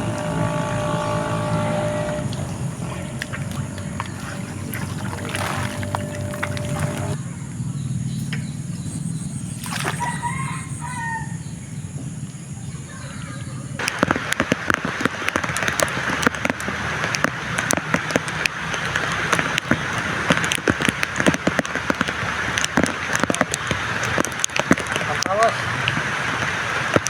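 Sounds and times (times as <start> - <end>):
rain pattering: 0.0 - 7.2, 13.8 - 27.0
rooster crowing: 9.8 - 11.5.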